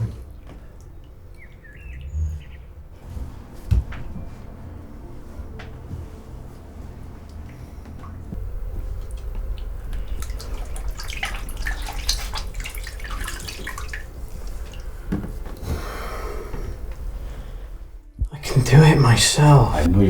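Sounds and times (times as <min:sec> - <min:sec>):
water dripping and splashing: 0:00.0 - 0:03.0, 0:07.2 - 0:17.8
steady low rumble: 0:00.0 - 0:20.0.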